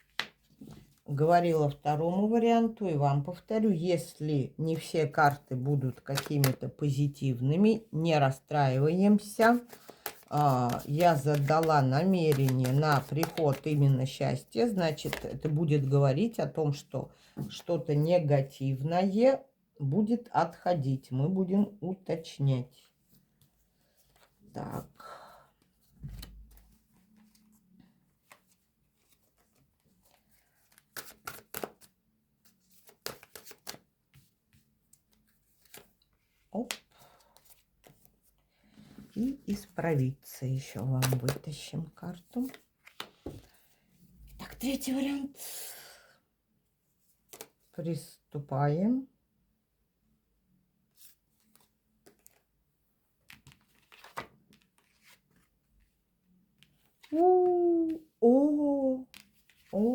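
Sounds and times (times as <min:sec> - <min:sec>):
cards rustling and clicking: 0:04.8 - 0:06.8, 0:09.1 - 0:15.6, 0:28.2 - 0:38.3, 0:41.0 - 0:41.6, 0:42.3 - 0:43.6, 0:47.3 - 0:47.6, 0:51.0 - 0:52.5
cards snapping and slapping: 0:06.1 - 0:06.6, 0:09.6 - 0:13.7, 0:30.7 - 0:31.9, 0:32.8 - 0:33.8.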